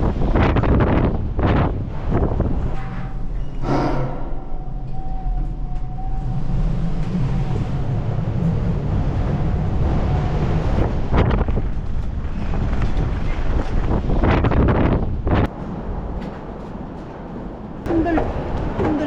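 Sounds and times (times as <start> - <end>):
strong gusty wind on microphone: 0.0 - 16.6.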